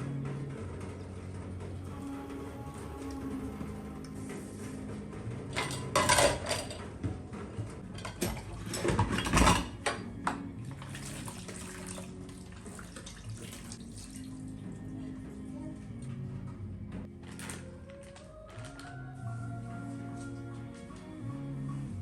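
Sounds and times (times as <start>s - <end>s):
dishes clinking: 5.5s - 7.2s, 7.8s - 10.4s
tap water splashing in sink: 10.8s - 14.3s.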